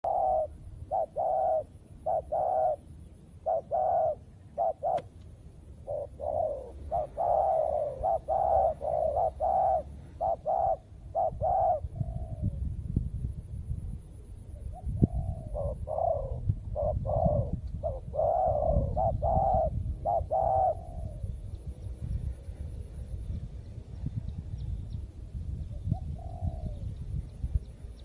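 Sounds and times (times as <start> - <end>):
doves cooing: 0.0 - 5.2, 5.8 - 12.6, 14.6 - 22.8, 25.8 - 27.0.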